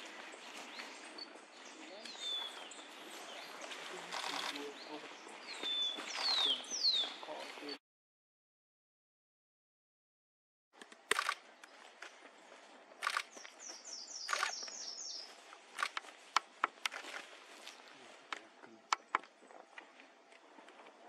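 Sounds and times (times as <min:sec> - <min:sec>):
sharp clicks: 0:10.8 - 0:11.8, 0:14.3 - 0:14.8, 0:15.8 - 0:17.1.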